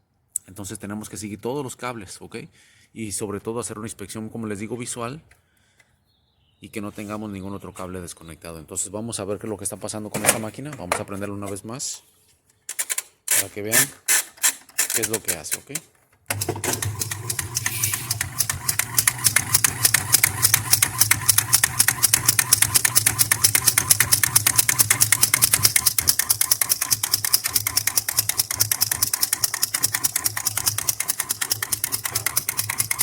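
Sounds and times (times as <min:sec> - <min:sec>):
fast clicking rattle: 0:14.7 - 0:33.0.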